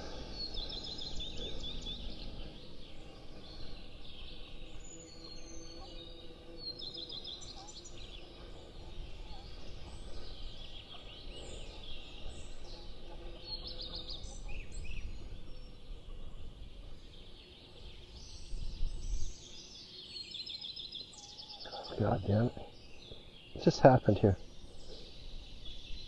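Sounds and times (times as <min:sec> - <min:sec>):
wind rumbling on microphone: 0:00.0 - 0:19.6
small birds chirping: 0:00.0 - 0:26.0.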